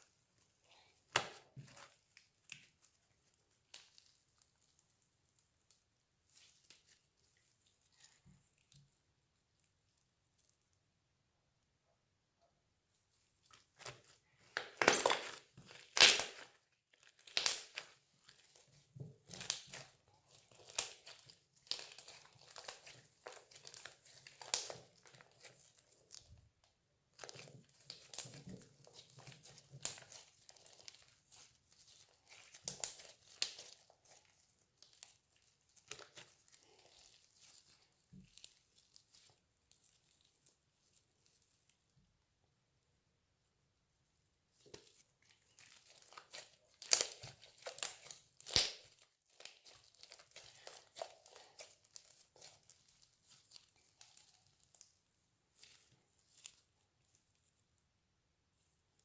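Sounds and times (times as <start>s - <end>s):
slime squeezed crackling and popping: 13.8s - 26.3s, 27.2s - 39.3s, 44.9s - 54.9s.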